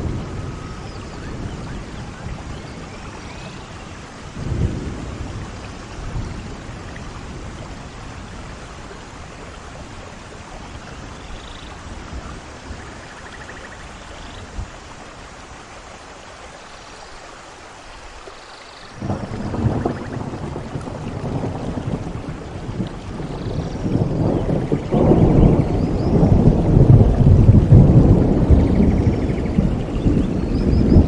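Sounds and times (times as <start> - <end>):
rolling thunder: 0.0 - 10.3, 19.0 - 31.0
heavy rain: 0.0 - 31.0.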